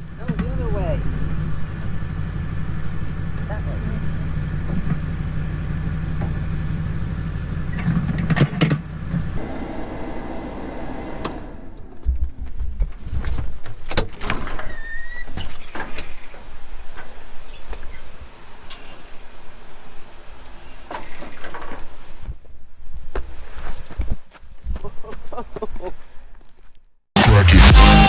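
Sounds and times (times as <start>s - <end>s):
combine engine running: 0.0s - 13.1s.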